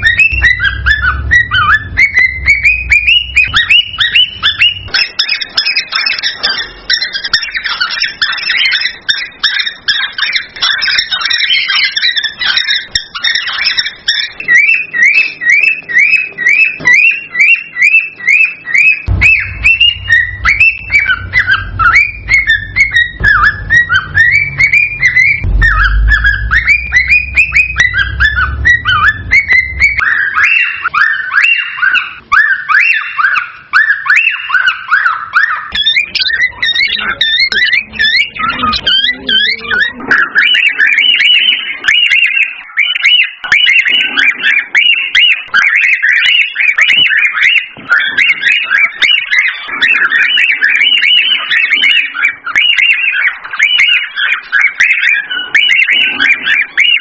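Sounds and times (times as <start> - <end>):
low rumble: 0.0 - 5.0, 19.1 - 30.9
cockatiels whistling and chirping: 0.0 - 57.0.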